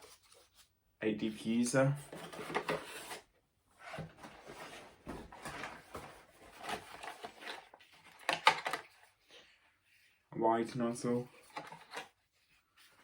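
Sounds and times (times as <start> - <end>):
plastic attachments clattering: 4.2 - 9.0.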